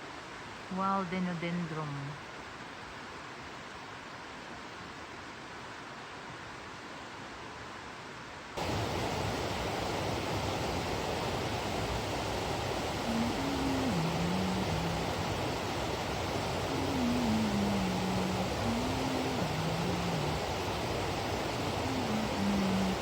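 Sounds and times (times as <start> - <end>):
river water rushing over rocks: 8.6 - 23.0.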